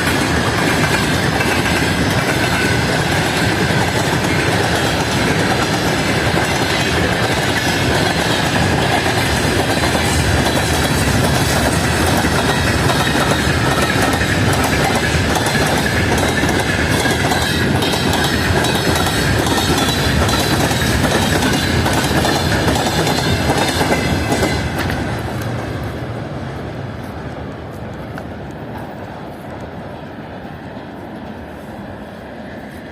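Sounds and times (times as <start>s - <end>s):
train wheels clattering: 0.0s - 26.0s
train rumble: 0.0s - 32.9s.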